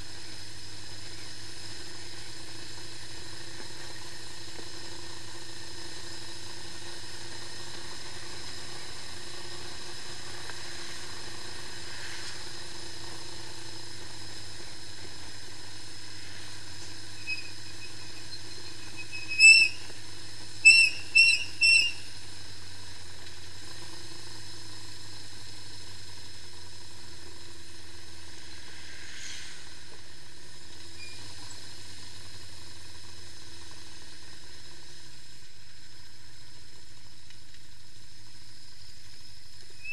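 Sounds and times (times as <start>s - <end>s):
motorcycle engine idling: 0.0s - 39.9s
high whistle-like chirps: 17.1s - 19.9s, 20.6s - 22.1s, 30.9s - 31.3s.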